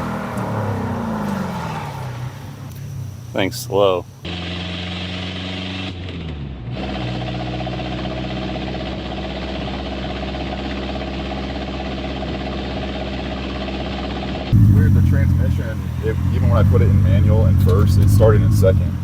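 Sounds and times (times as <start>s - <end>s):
car engine running: 7.7s - 19.0s.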